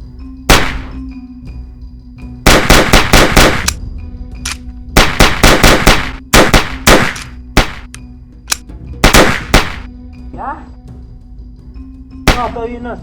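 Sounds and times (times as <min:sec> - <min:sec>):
background music: 0:00.0 - 0:13.0
single gunshots: 0:00.5 - 0:01.0, 0:02.5 - 0:03.8, 0:05.0 - 0:07.9, 0:09.0 - 0:09.9, 0:12.3 - 0:12.7
automatic gunfire bursts: 0:02.5 - 0:03.7, 0:05.0 - 0:07.8, 0:09.0 - 0:09.9.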